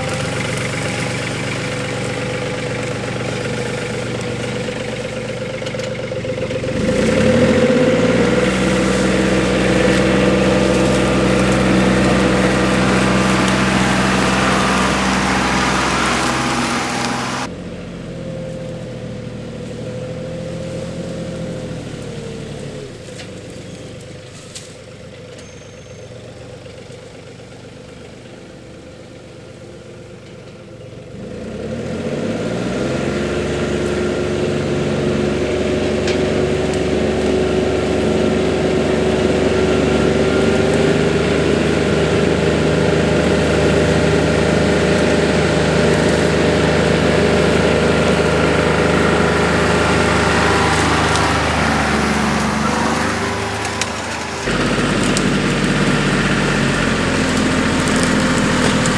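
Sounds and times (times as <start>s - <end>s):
tractor engine revving: 0.0s - 17.5s, 31.3s - 58.9s.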